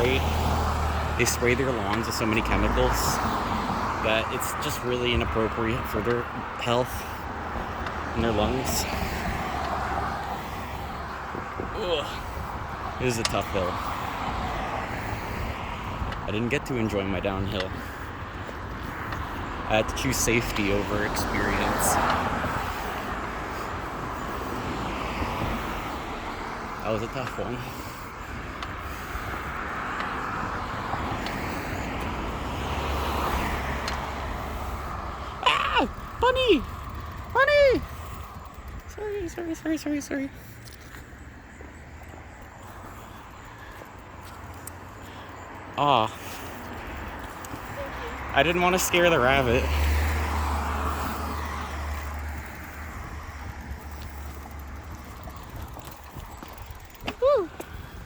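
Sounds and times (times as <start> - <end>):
bicycle tyre noise: 0.0 - 39.0, 40.4 - 58.0
car passing by: 0.0 - 58.0
wind on microphone: 7.2 - 16.4, 50.0 - 58.0.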